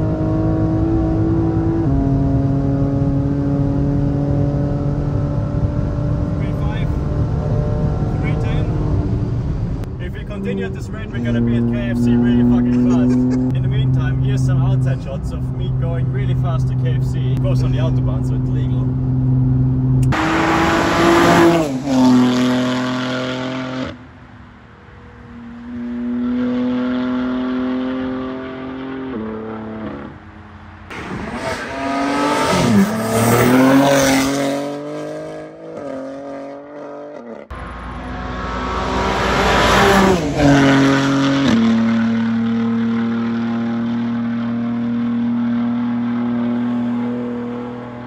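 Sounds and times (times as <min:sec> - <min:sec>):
car engine driving by at speed: 0:30.9 - 0:48.0.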